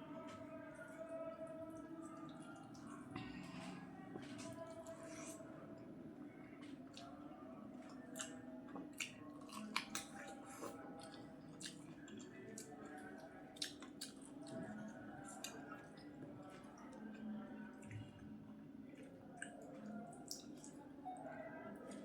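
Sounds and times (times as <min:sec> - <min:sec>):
person chewing with wet mouth sounds: 0:06.4 - 0:21.2.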